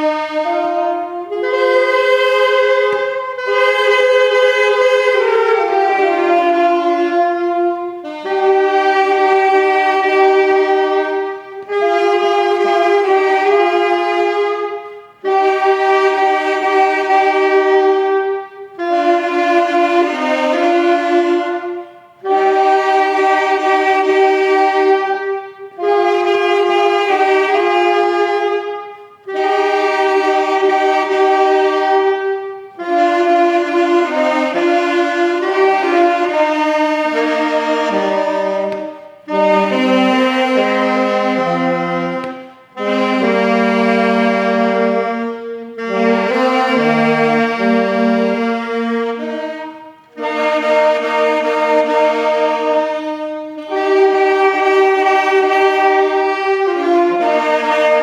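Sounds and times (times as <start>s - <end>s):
reedy instrumental melody: 0.0s - 58.0s.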